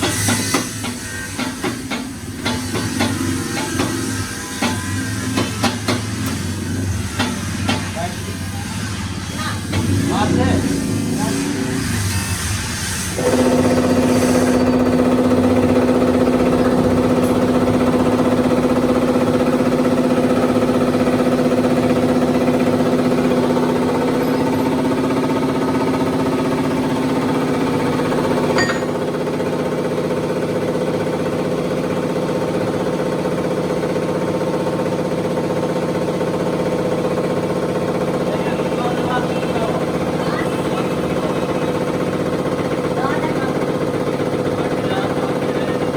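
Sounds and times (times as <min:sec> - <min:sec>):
diesel engine knocking: 0:09.6 - 0:11.7, 0:13.2 - 0:45.9.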